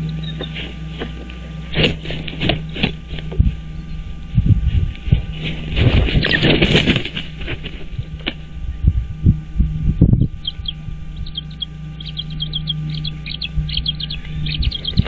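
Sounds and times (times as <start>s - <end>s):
steady low hum: 0.0s - 15.0s
dull thumps on a stick nest: 0.3s - 3.6s, 4.9s - 8.5s
short high bird chirps: 10.4s - 15.0s.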